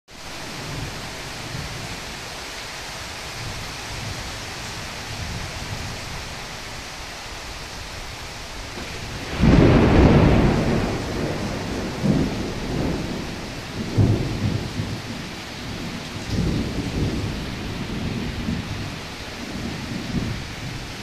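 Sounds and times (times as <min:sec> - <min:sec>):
heavy rain falling: 0:00.1 - 0:21.0
loud thunder clap: 0:08.8 - 0:20.8.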